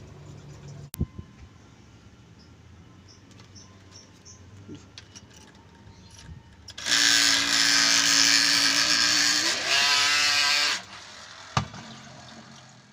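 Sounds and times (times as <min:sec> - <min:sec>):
small electric motor whining: 0:06.0 - 0:12.9.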